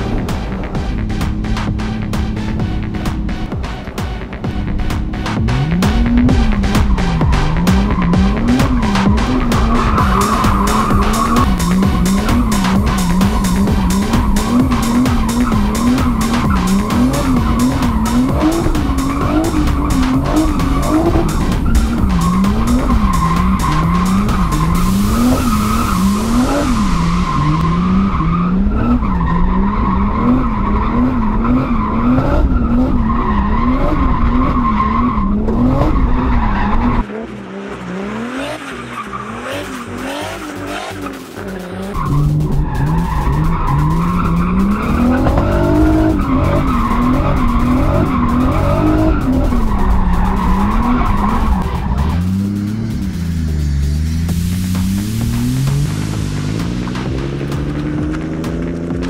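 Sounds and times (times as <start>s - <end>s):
car engine revving: 0.0s - 59.0s
tyres skidding and squealing: 0.0s - 59.0s.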